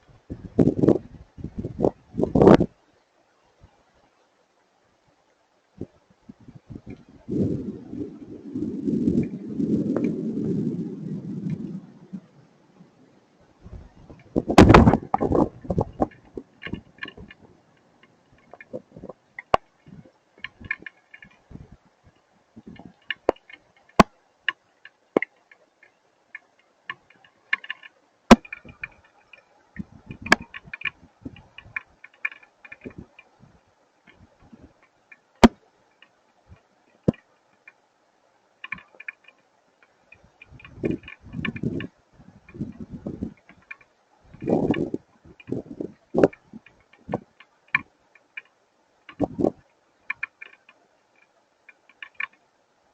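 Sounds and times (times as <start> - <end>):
rumble of thunder: 6.8 - 12.8.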